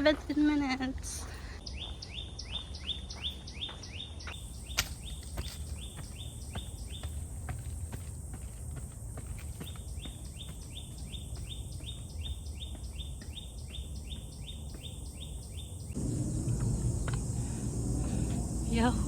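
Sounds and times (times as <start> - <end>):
low rumble: 15.9 - 19.0.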